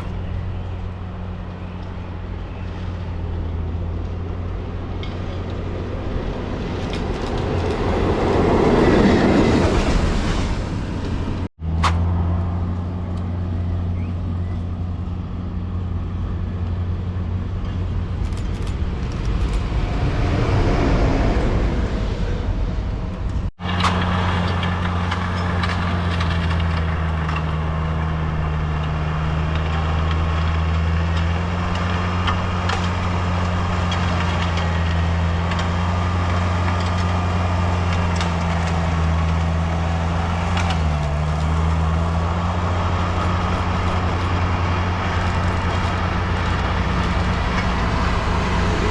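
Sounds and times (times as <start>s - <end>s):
train passing: 0.0s - 11.5s, 12.1s - 48.9s
low hum: 0.0s - 48.9s
clicks and rattles: 4.9s - 8.5s, 17.6s - 19.7s, 23.6s - 27.8s, 28.8s - 47.9s.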